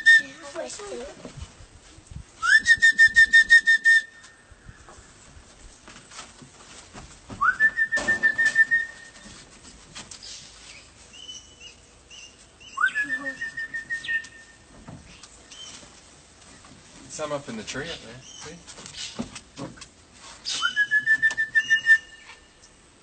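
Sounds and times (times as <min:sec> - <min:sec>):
person whistling: 0:02.4 - 0:04.3, 0:07.4 - 0:09.2, 0:12.8 - 0:14.4, 0:20.5 - 0:22.4.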